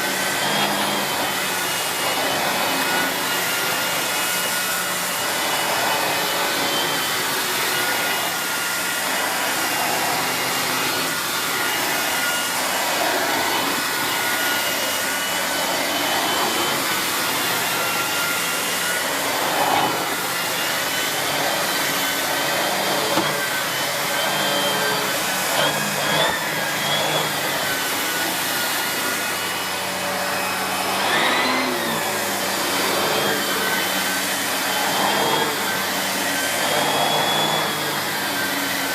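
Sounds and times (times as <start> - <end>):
vacuum cleaner whining: 0.0 - 38.9.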